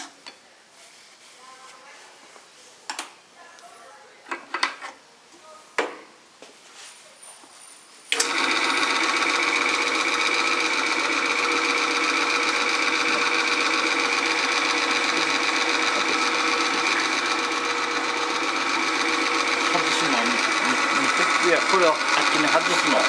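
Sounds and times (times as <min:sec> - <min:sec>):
small motor machine whining: 0:08.1 - 0:23.0.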